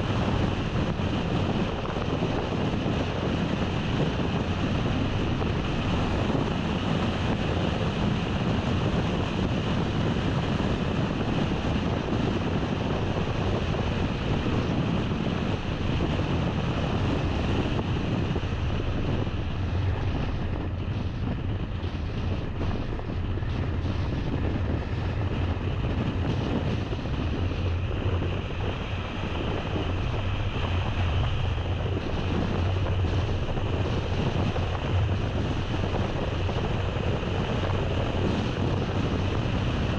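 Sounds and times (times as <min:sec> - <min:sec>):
car road and engine rumble: 0:00.0 - 0:39.9
wind on microphone: 0:00.0 - 0:39.9.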